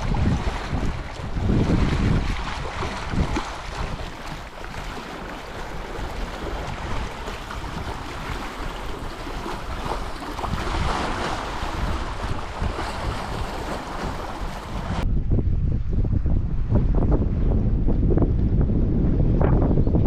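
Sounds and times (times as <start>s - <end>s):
sea waves: 0.0s - 15.0s
wind buffeting microphone: 0.0s - 20.0s.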